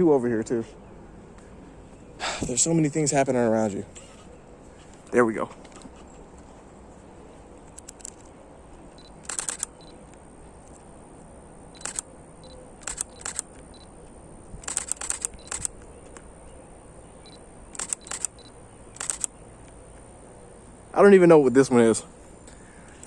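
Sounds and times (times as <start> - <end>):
camera shutter clicks: 7.7 - 8.3, 9.0 - 10.0, 11.8 - 13.9, 14.6 - 16.2, 17.3 - 19.4.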